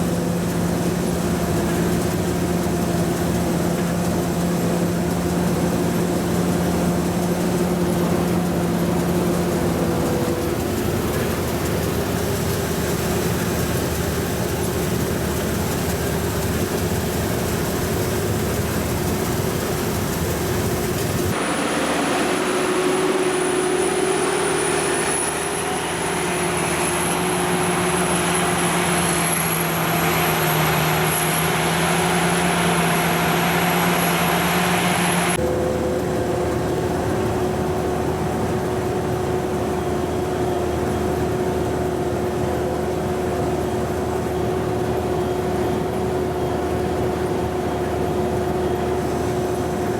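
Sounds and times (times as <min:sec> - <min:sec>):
combine harvester running: 0:00.0 - 0:49.9
thin high whine: 0:17.5 - 0:41.5.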